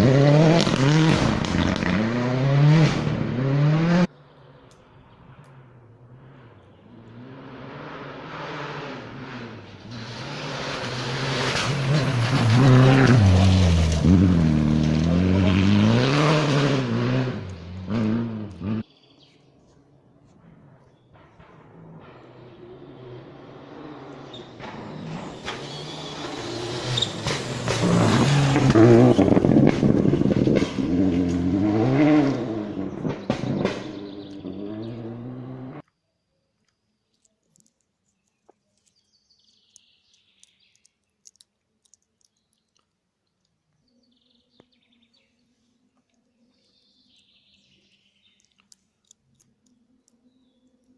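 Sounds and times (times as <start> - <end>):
rally car engine revving: 0.0 - 4.1, 5.3 - 18.9, 20.4 - 35.8
bird chirps: 18.8 - 19.8, 32.8 - 35.0, 35.9 - 41.3, 42.1 - 50.9
faint clicks: 36.6 - 43.8, 48.2 - 50.9.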